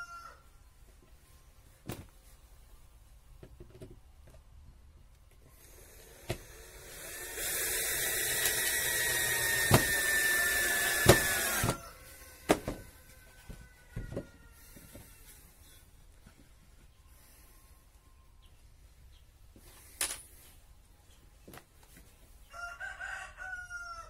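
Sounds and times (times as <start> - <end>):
electric power tool whining: 5.5 - 11.8
sharp wooden knocks: 9.6 - 10.0, 11.0 - 11.8.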